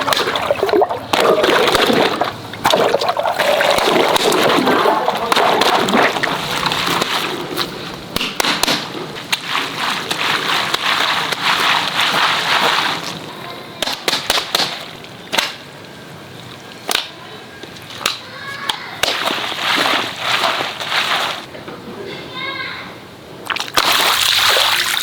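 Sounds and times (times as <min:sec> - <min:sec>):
water rushing and splashing: 0:00.0 - 0:17.0, 0:19.0 - 0:21.5, 0:23.6 - 0:25.0
sharp snaps: 0:08.1 - 0:08.9, 0:13.8 - 0:15.7, 0:17.9 - 0:19.3.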